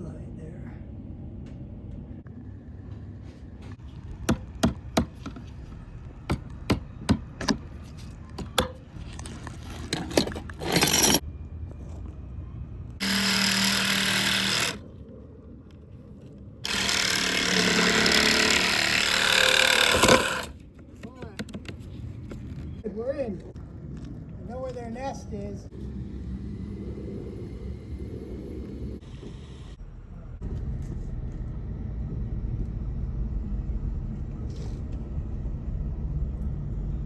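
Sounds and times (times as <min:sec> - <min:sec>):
sharp knocks: 0:04.3 - 0:05.5
power saw cutting: 0:09.8 - 0:11.2, 0:13.0 - 0:14.8, 0:16.6 - 0:20.6.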